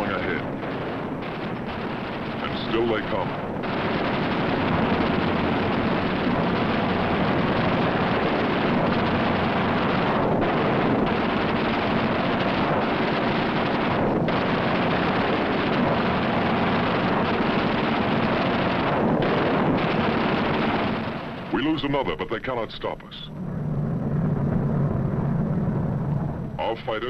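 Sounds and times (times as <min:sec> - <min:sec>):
aircraft engines droning: 0:20.5 - 0:27.0.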